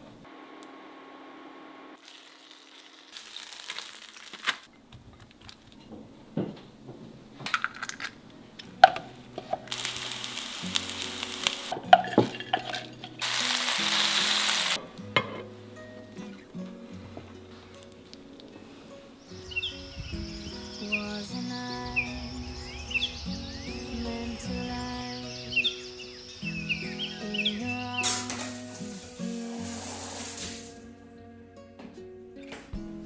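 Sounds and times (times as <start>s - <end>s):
chicken sizzling in frying pan: 2.0s - 4.6s, 9.4s - 14.8s
soft background music: 8.7s - 33.0s.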